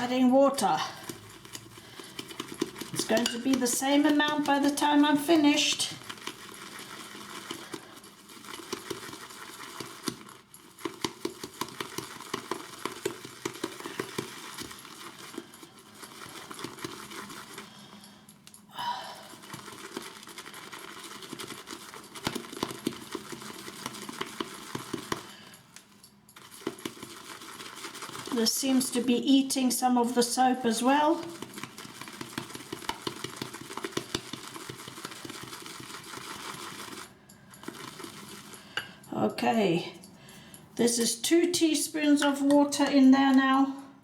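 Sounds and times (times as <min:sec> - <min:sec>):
shaving brush whipping lather: 0:00.0 - 0:17.8, 0:26.4 - 0:38.7.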